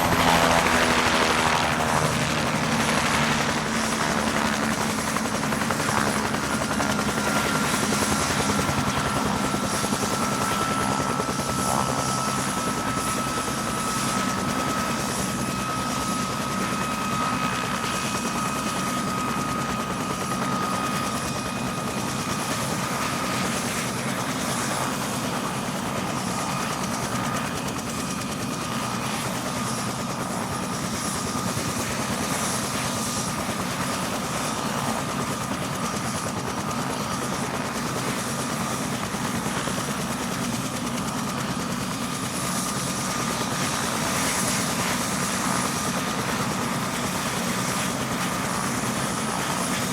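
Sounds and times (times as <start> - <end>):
helicopter rotor and engine: 0.0 - 49.9.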